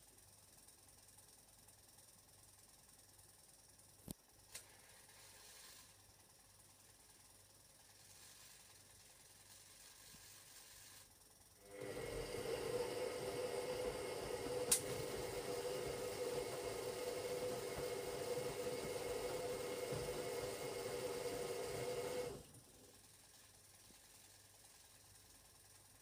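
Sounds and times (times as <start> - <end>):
washing machine motor humming: 11.6 - 23.3
sharp click: 14.7 - 14.9.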